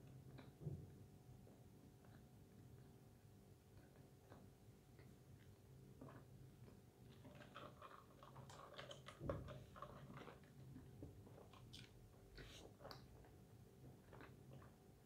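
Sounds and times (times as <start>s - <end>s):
person chewing a burger: 3.7s - 15.0s.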